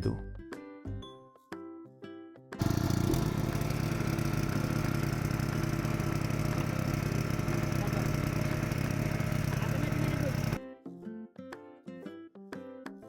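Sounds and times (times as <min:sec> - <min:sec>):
engine running with low rumble: 0:02.6 - 0:10.6.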